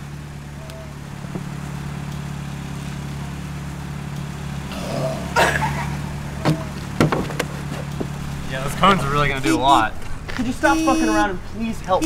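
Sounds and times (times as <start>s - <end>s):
car engine idling: 0.0s - 12.0s
engine cough: 4.6s - 6.8s
sharp knocks: 6.4s - 8.2s.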